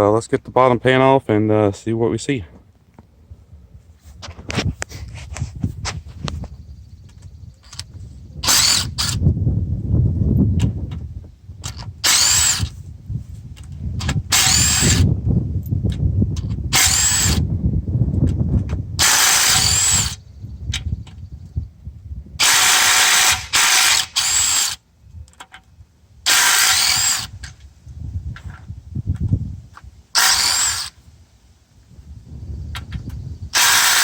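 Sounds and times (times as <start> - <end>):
power tool spinning out bolts: 7.6 - 9.2, 11.6 - 12.8, 14.0 - 15.1, 16.4 - 17.4, 19.0 - 20.2, 22.4 - 24.8, 26.3 - 27.6, 30.1 - 31.0, 32.8 - 34.0.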